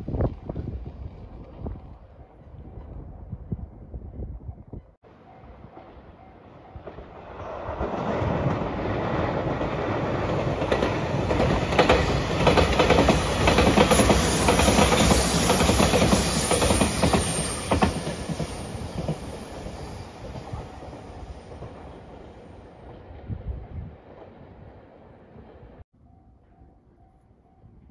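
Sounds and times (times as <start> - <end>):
train rumble: 5.3 - 25.8.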